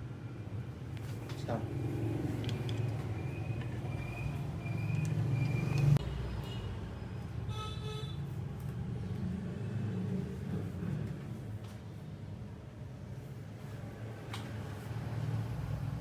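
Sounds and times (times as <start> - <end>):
street traffic rumbling: 0.0 - 16.0
vehicle horn toot: 7.5 - 8.3.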